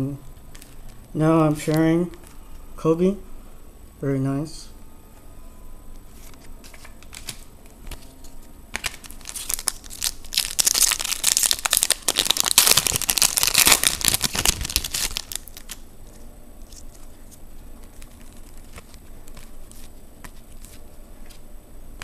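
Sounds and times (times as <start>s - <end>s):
foil wrapper crinkling and tearing: 8.8s - 15.8s, 16.6s - 20.8s.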